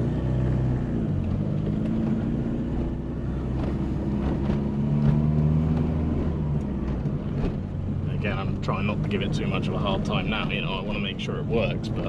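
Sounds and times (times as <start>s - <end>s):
car engine at light throttle: 0.0s - 12.0s
road noise: 0.0s - 12.0s.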